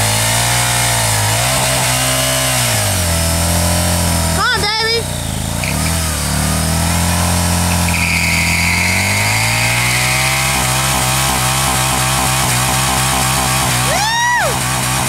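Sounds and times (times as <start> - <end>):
motorcycle engine revving high: 0.0 - 15.0
high squeal: 7.6 - 10.5.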